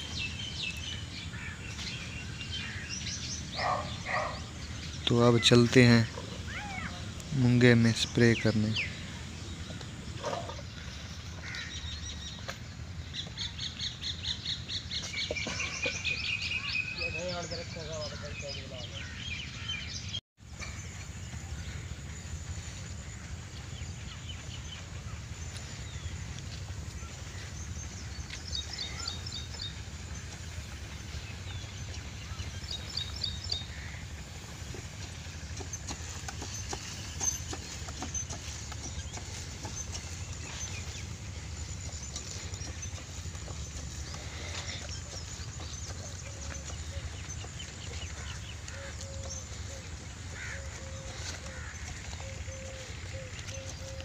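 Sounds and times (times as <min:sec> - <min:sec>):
birds chirping: 0:00.0 - 0:54.0
steady low rumble: 0:20.7 - 0:53.8.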